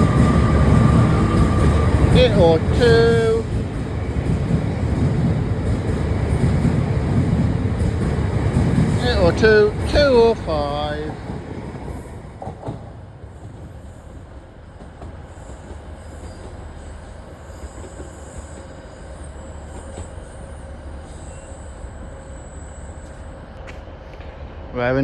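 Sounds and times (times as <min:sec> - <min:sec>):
train wheels rumbling on rail: 0:00.0 - 0:25.0
faint high-pitched squeal: 0:15.4 - 0:23.6.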